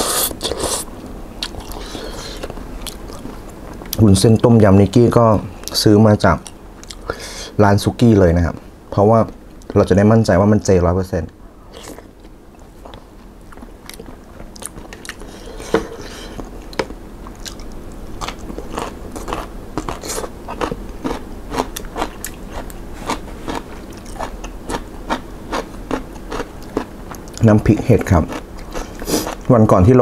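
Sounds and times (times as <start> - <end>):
person crunching raw vegetable: 16.3 - 29.5.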